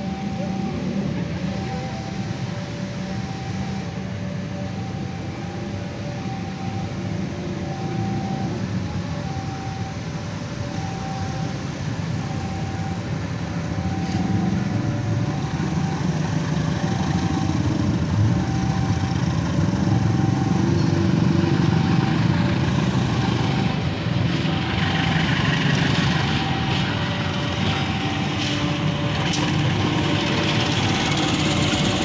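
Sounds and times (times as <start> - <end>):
train rumbling past: 6.2 - 32.0.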